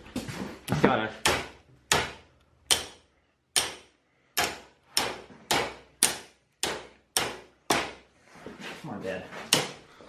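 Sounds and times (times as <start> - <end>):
hammer striking metal lever: 1.2 - 3.0, 3.6 - 8.0.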